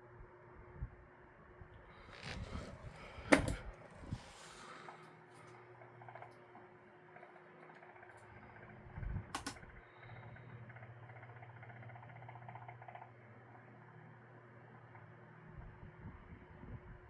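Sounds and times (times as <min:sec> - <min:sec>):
electric fan motor hum: 0:00.0 - 0:17.0
fan rattling: 0:02.0 - 0:06.4, 0:07.1 - 0:09.8, 0:10.7 - 0:13.1
sharp click: 0:09.4 - 0:09.6.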